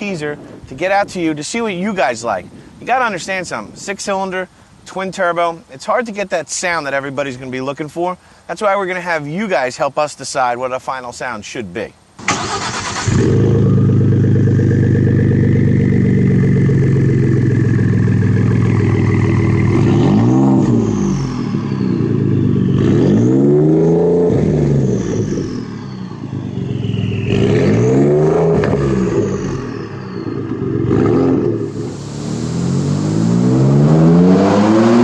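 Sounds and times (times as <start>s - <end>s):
truck engine idling and revving: 12.4s - 35.0s
faint high turbo whistle: 25.0s - 28.0s.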